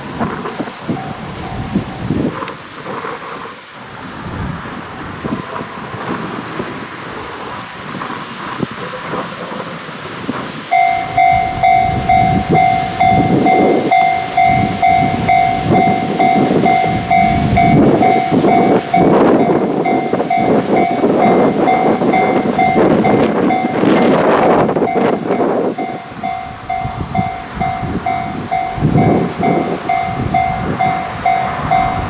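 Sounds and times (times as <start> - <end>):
freight train rolling past: 0.0 - 32.0
wheels clattering over rail joints: 0.0 - 32.0
bell-like warning tone: 0.8 - 2.1, 10.7 - 32.0.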